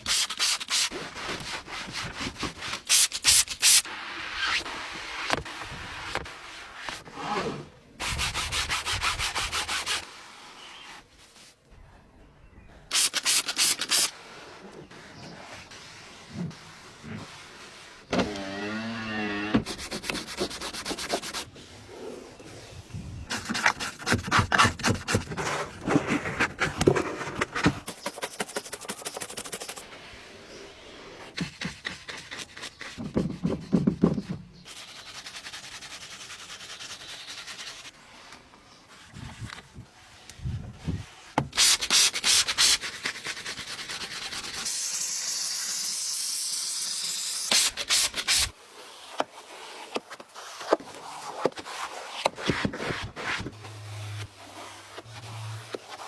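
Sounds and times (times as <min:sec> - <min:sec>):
brush scrubbing a car: 0:13.0 - 0:18.1, 0:19.6 - 0:22.4, 0:34.7 - 0:45.0, 0:47.6 - 0:56.0.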